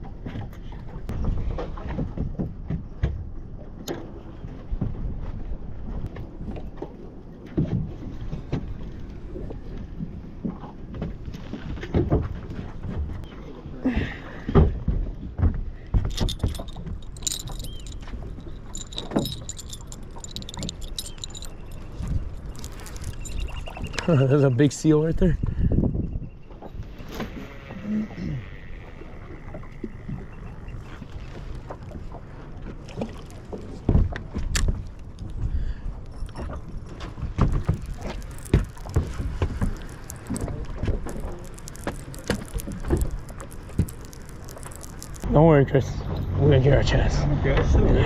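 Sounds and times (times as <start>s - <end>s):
boat engine rumble: 0.0s - 48.0s
light metallic clinking: 16.0s - 24.1s, 36.0s - 45.3s.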